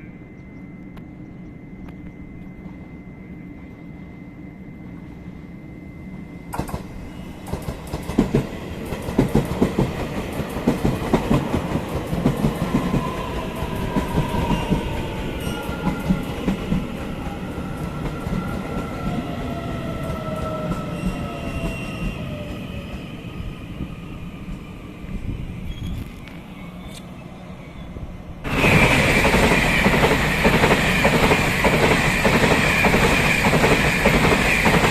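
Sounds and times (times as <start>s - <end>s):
train wheels clattering on rails: 6.5s - 19.2s, 28.5s - 34.9s.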